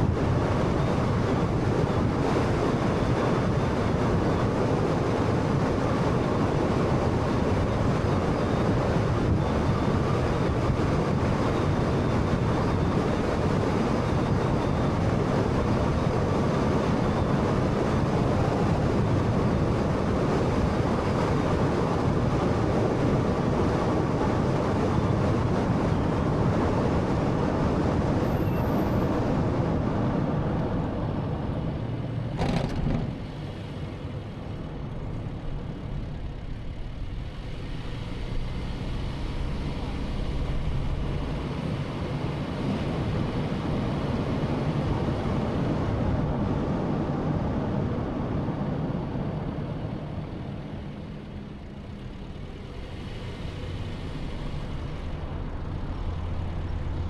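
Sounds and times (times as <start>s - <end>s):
car tyre and engine road noise: 0.0s - 57.0s
brief knock: 32.4s - 33.2s.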